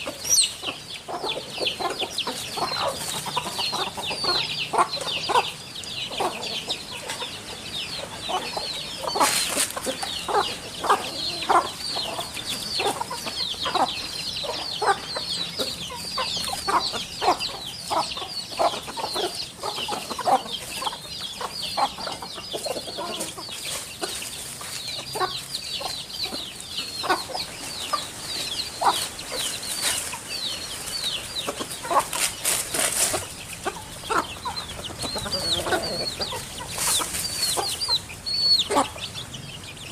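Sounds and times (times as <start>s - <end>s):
low clucking bird calls: 0.0s - 39.9s.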